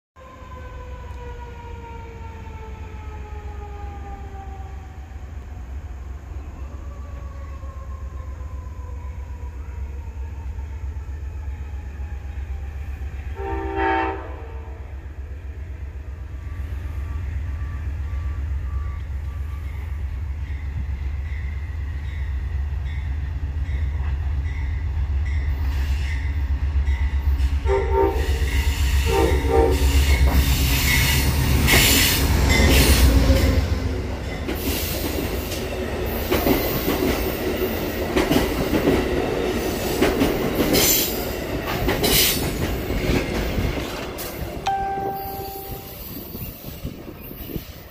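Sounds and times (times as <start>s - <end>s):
train cars rolling past: 10.7s - 47.9s
train horn blasts: 13.3s - 15.0s, 27.6s - 30.2s, 44.7s - 46.4s.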